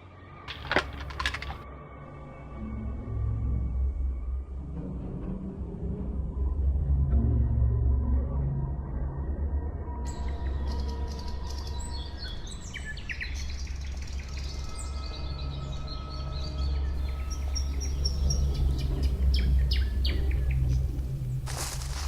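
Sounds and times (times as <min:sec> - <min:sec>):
low steady drone: 0:01.7 - 0:13.0, 0:16.8 - 0:22.0
songbirds chirping: 0:10.1 - 0:22.0.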